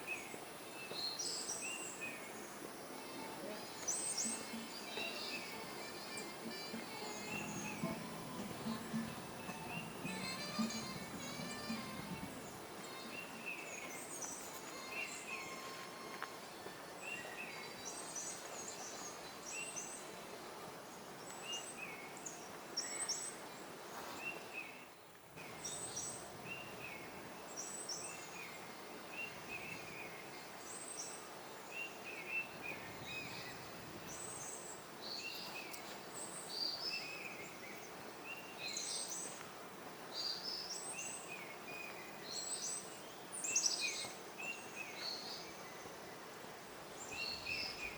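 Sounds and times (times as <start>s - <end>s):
steady background hiss: 0.0s - 47.9s
birds chirping: 0.2s - 19.2s.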